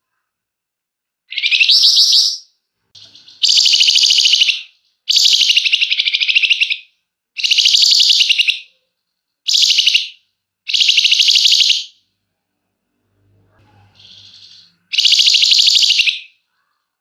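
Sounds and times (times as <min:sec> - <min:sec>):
songbird rattling trill: 0:03.0 - 0:08.6, 0:09.5 - 0:11.9, 0:14.0 - 0:16.3.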